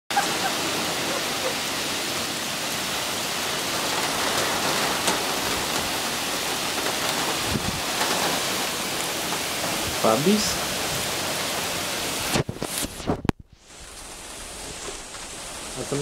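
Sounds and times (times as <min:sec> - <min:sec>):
heavy rain on pavement: 0:00.1 - 0:16.0.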